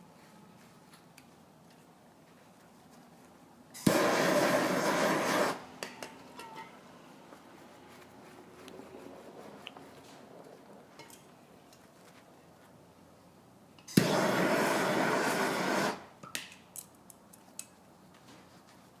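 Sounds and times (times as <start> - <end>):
torch flame blowing: 3.7 - 5.8, 13.9 - 16.1.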